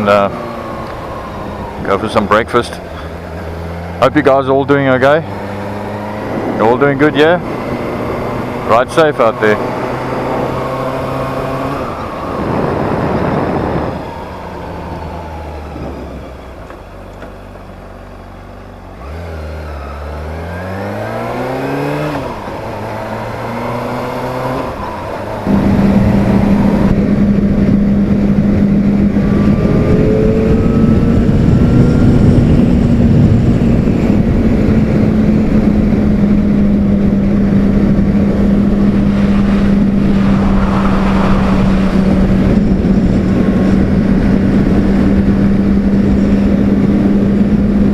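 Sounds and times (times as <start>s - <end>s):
wind rush on microphone: 0.0s - 16.6s, 20.7s - 47.9s
motorcycle engine revving: 0.0s - 16.8s, 18.7s - 47.9s.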